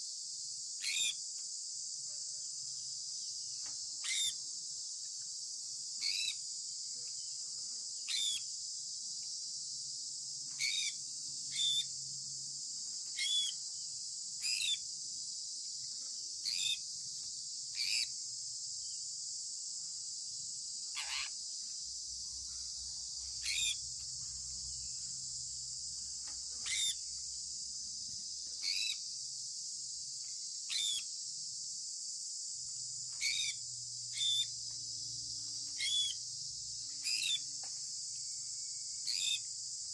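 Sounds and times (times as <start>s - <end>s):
steady high-pitched hiss: 0.0s - 39.9s
parrot chirping: 10.6s - 11.9s, 13.2s - 13.6s, 17.8s - 18.1s, 20.9s - 21.3s, 23.4s - 23.8s, 26.6s - 27.0s, 33.2s - 34.5s, 35.8s - 36.2s, 39.1s - 39.4s.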